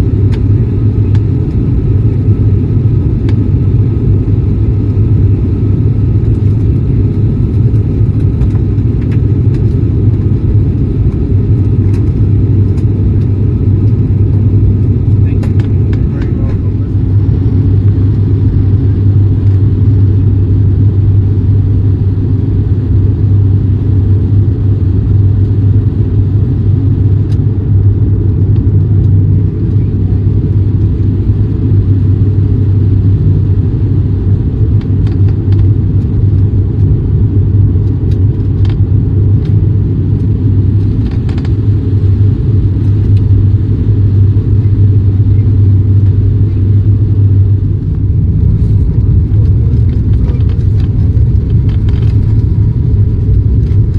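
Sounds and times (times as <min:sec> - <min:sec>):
constant hum: 0:00.0 - 0:53.9
vehicle rumble from inside: 0:00.0 - 0:53.9.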